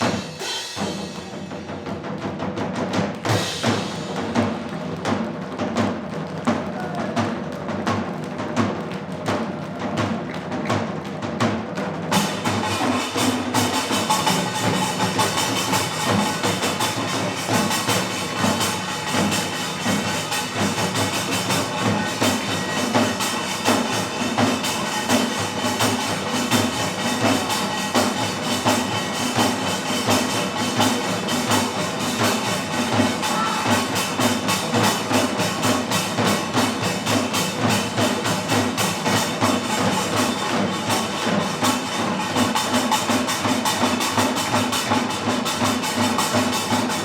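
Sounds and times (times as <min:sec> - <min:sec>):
percussion ensemble music: 0:00.0 - 0:47.0.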